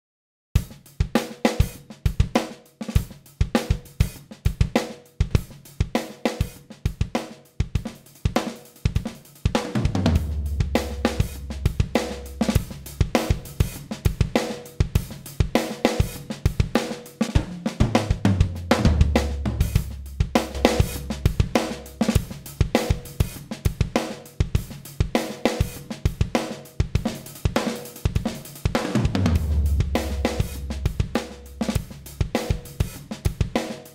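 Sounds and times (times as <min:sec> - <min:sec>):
drum kit playing a groove: 0:00.6 - 0:33.9
bass long low notes: 0:09.9 - 0:13.0, 0:18.3 - 0:22.0, 0:29.1 - 0:31.8.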